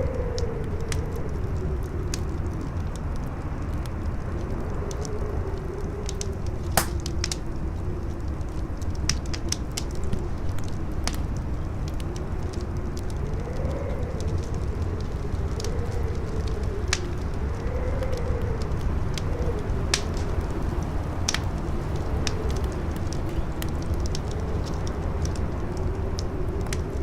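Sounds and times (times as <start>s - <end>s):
campfire crackling: 0.0s - 27.0s
fire popping: 0.0s - 27.0s
howling wind: 0.0s - 27.0s
loud crack: 6.8s - 7.2s.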